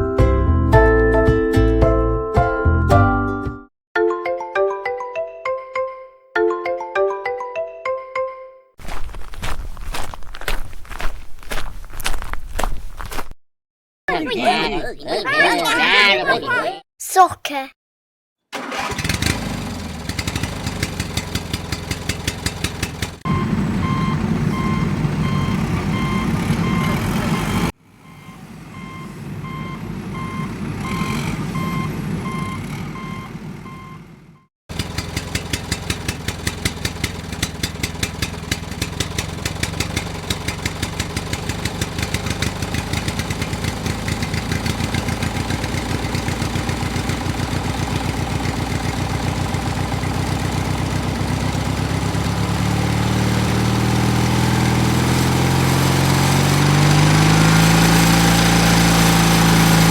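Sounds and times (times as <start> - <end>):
small tractor engine running: 18.6 - 27.7, 28.8 - 59.9
pulsing electronic beep: 23.3 - 34.0.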